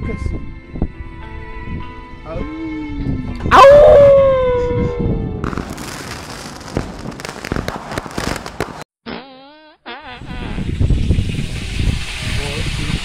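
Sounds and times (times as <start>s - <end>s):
crackle of sharp pops: 5.4s - 8.9s.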